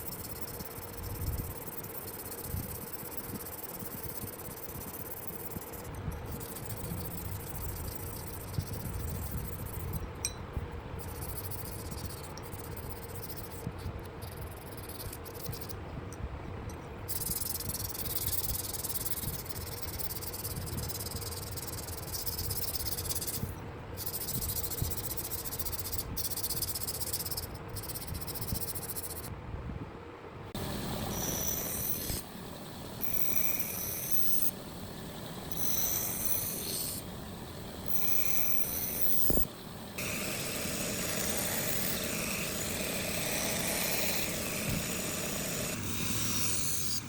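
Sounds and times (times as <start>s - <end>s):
steel grinding hiss: 0.0s - 10.0s, 30.6s - 47.0s
faint steady hum: 0.0s - 47.0s.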